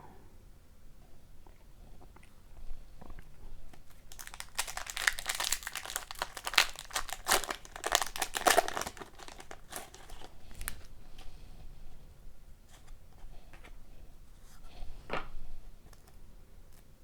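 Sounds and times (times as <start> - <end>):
wrapper crinkling and tearing: 3.9 - 10.9.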